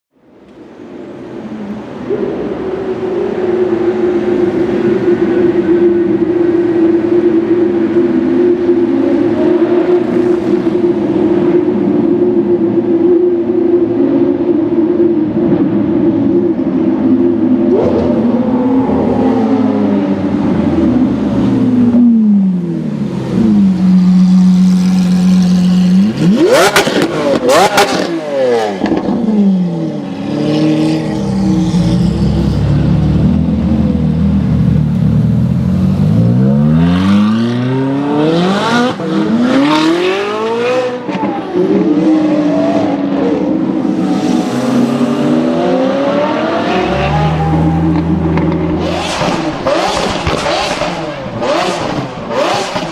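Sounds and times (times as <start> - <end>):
car engine revving: 15.6 - 52.9
exhaust cracks: 47.8 - 52.9.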